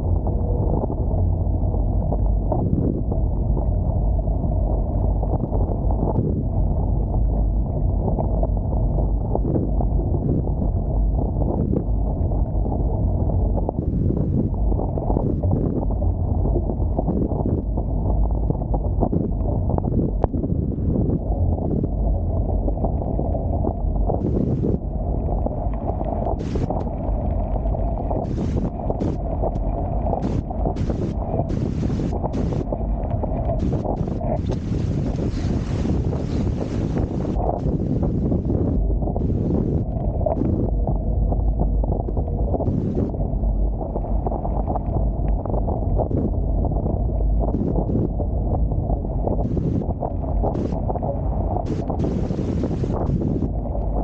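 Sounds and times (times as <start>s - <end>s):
wind buffeting microphone: 0.0s - 54.0s
rushing water: 25.4s - 38.5s, 50.5s - 54.0s.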